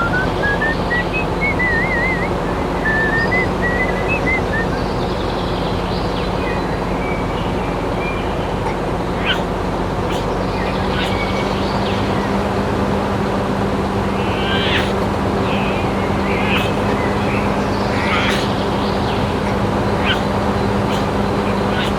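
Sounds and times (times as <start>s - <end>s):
noisy rush: 0.0s - 21.9s
small motor humming: 6.7s - 21.9s.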